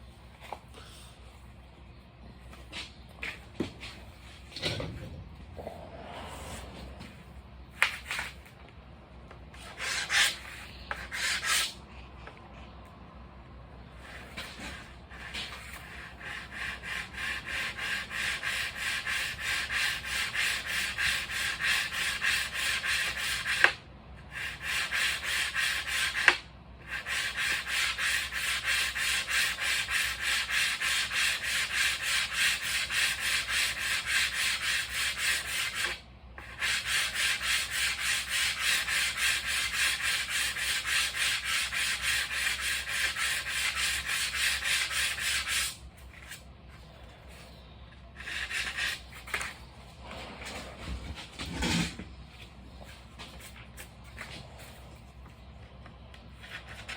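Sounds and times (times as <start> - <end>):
sandpaper rubbing: 24.4 - 46.4, 48.2 - 49.5.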